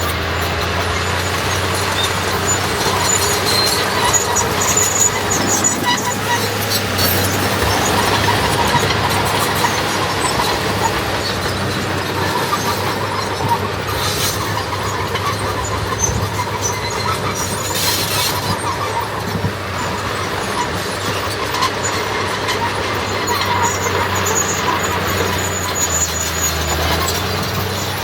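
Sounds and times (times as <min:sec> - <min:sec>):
heavy diesel machinery running: 0:00.0 - 0:28.0
metallic track squealing and clatter: 0:00.0 - 0:28.0.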